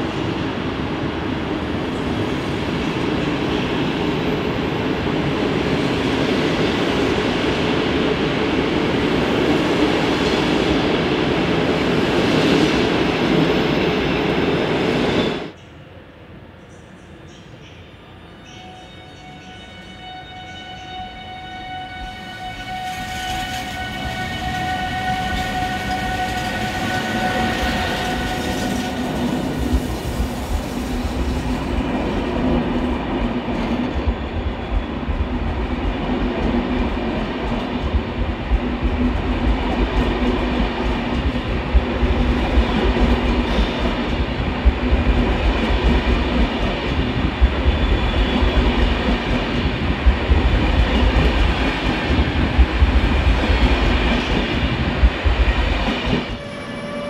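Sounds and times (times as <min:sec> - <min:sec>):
train low rumble: 0:21.7 - 0:57.0.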